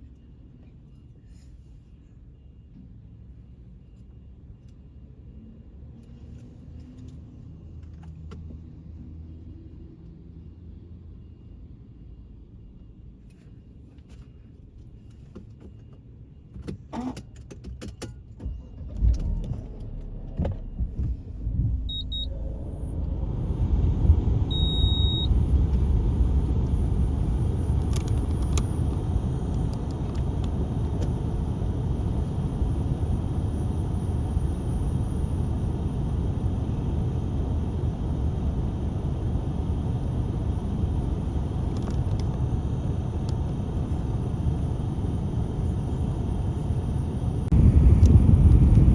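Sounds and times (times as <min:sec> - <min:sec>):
low motor vehicle rumble: 0:18.3 - 0:48.9.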